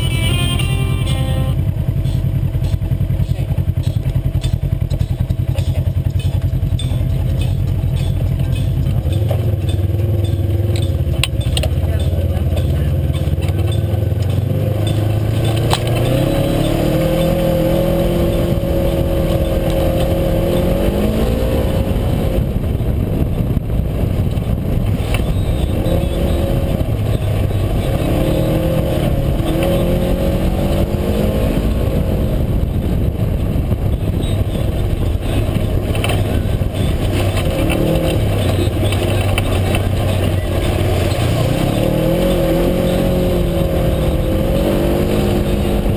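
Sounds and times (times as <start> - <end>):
steady rumble: 0.0 - 45.9
utility vehicle engine revving: 0.0 - 45.9.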